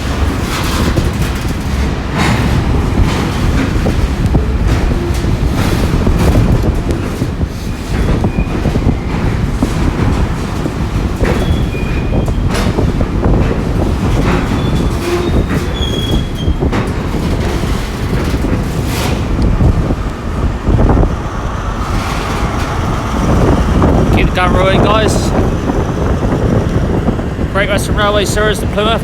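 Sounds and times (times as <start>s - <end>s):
train rumbling past: 0.0s - 29.0s
wheels knocking over rail joints: 0.0s - 29.0s
train wheel squeals: 7.6s - 9.8s, 11.1s - 12.9s, 13.8s - 18.0s.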